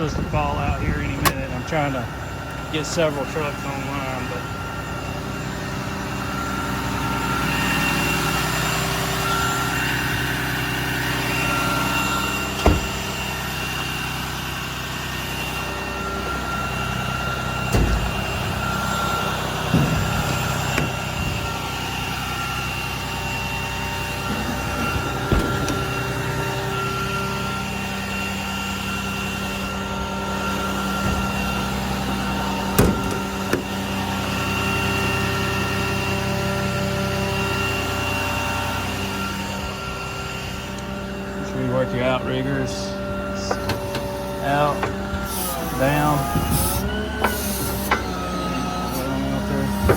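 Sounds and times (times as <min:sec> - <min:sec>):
truck engine idling: 0:00.0 - 0:49.9
sharp knocks: 0:12.6 - 0:13.1, 0:17.7 - 0:18.7.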